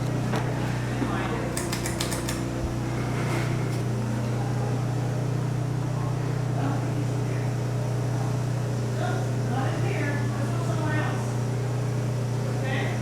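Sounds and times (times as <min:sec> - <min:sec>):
ceiling fan motor humming: 0:00.0 - 0:13.0.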